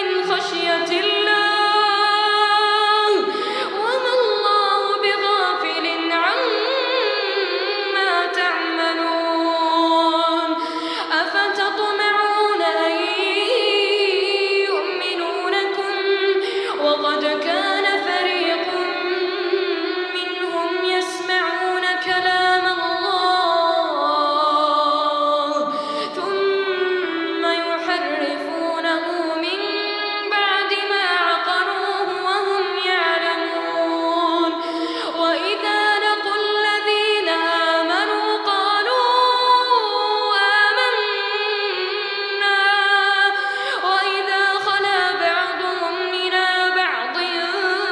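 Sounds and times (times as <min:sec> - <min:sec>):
child chanting melodically: 0:24.6 - 0:42.4.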